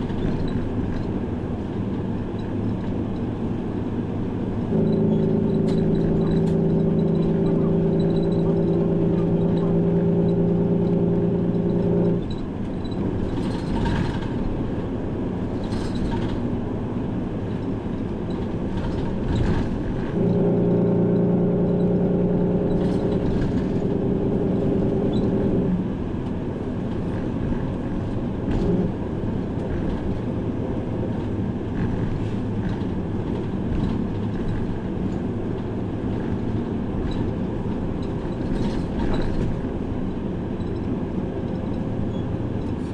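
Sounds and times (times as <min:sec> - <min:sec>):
bus engine and road noise: 0:00.0 - 0:42.9
multi-tone drone: 0:04.7 - 0:12.4, 0:20.2 - 0:26.0.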